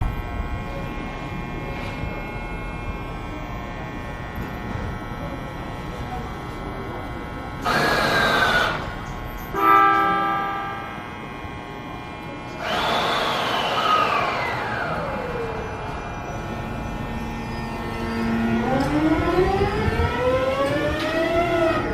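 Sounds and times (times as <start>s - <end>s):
train horn blast: 9.5s - 11.2s.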